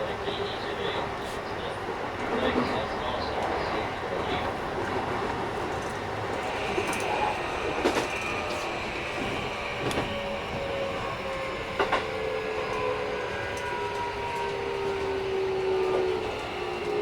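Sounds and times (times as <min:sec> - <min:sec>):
train rolling rumble: 0:00.0 - 0:17.0
train motor whine: 0:05.6 - 0:17.0.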